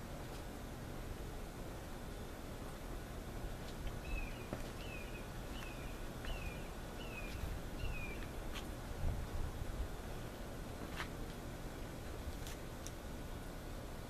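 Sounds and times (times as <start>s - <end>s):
bird chirping: 4.0s - 8.4s.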